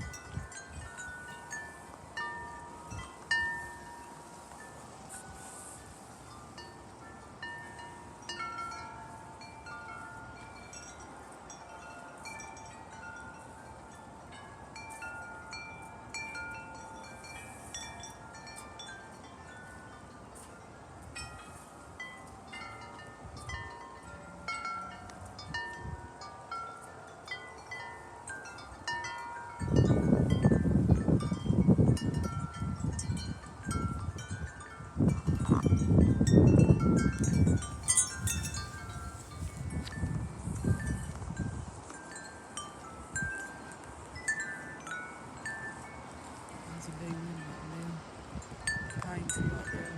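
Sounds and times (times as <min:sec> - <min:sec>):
wind gust on microphone: 0:00.0 - 0:06.8, 0:29.6 - 0:45.6, 0:46.5 - 0:49.9
wind chimes ringing: 0:00.0 - 0:49.9.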